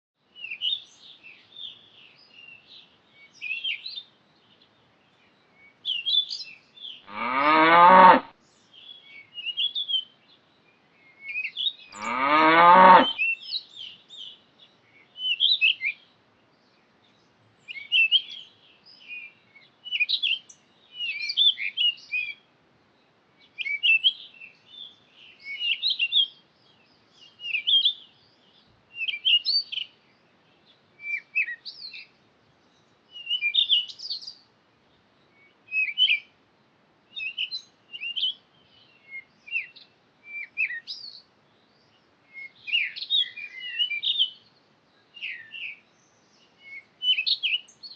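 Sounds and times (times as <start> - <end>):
birds chirping and twittering: 0.2 - 47.9
cow mooing: 7.1 - 8.3, 12.0 - 13.2.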